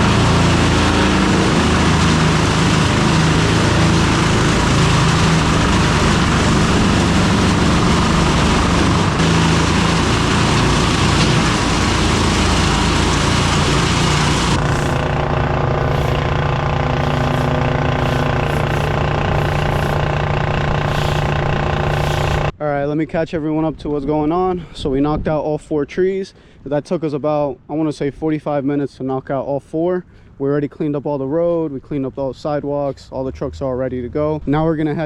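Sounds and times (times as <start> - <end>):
loud rushing noise: 0.0 - 22.5
vehicle engine running: 0.0 - 22.5.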